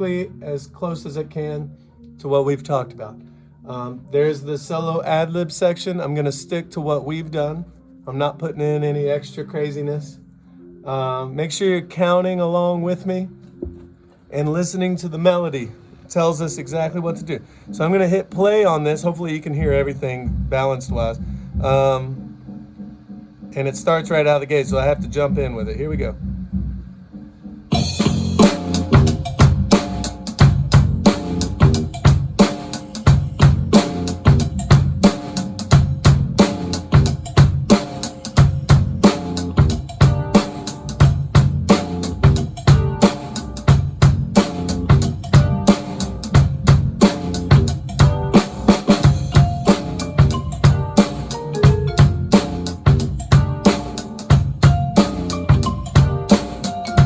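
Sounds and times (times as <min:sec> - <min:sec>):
recorded band music: 0:26.6 - 0:57.0
drum kit playing: 0:27.2 - 0:57.0.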